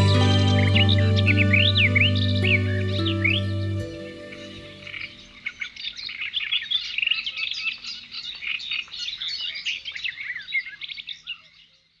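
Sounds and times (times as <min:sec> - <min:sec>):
birds chirping: 0:00.0 - 0:05.4.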